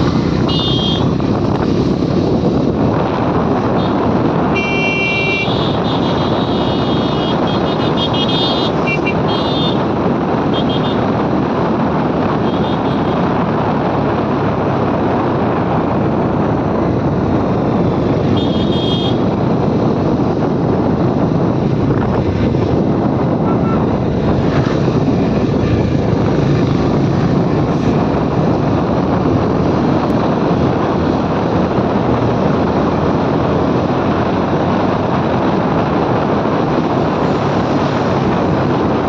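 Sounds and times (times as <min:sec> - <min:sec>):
motorcycle road noise: 0:00.0 - 0:39.0
rushing wind: 0:00.0 - 0:39.0
vehicle horns honking: 0:00.4 - 0:01.1, 0:03.8 - 0:09.8, 0:10.5 - 0:11.0, 0:18.3 - 0:19.2, 0:23.4 - 0:23.8.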